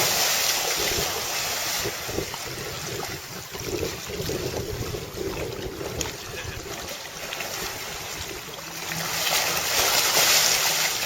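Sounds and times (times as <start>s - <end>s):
wind on microphone: 0.0s - 8.6s
rushing water: 0.0s - 11.0s.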